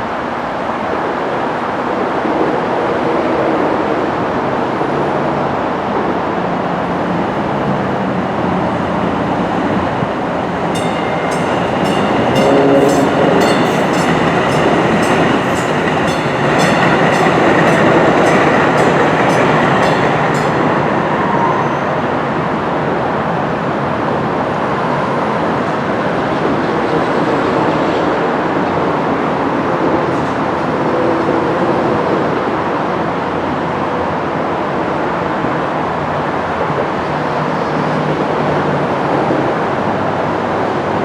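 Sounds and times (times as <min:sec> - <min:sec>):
train wheels on rail: 0:06.4 - 0:22.5.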